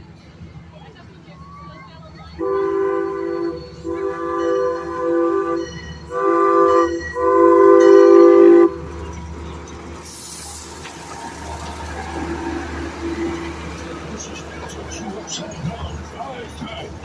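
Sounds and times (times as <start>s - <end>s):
passing train rumble: 0.0s - 17.0s
train horn blasts: 2.4s - 9.0s.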